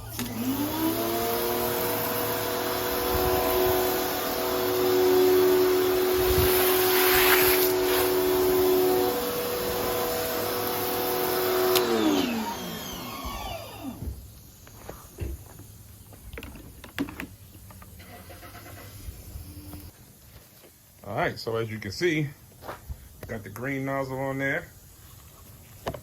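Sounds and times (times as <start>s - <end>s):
motor winding down: 0.0s - 14.2s
pressure washer whine: 0.0s - 15.3s
water spray hiss: 6.2s - 8.6s
handling clicks and knocks: 16.3s - 18.0s.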